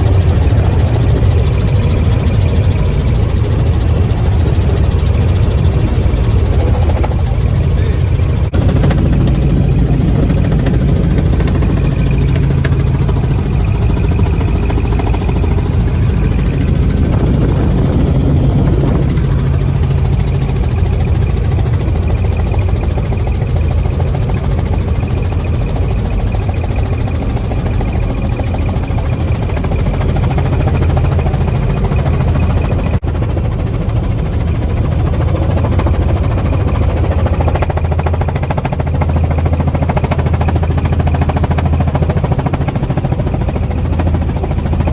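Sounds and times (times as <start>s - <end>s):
helicopter engine and rotor drone: 0.0s - 44.9s.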